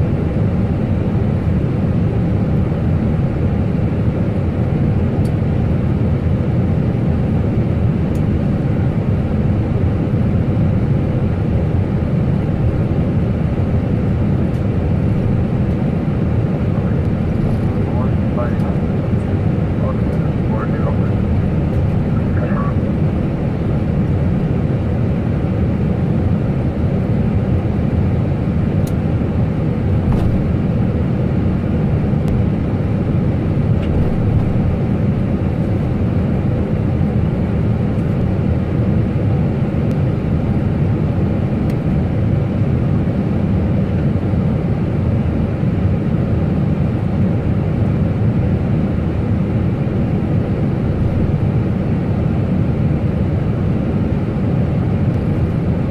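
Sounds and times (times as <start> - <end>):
airliner engines and rushing air: 0.0 - 55.9.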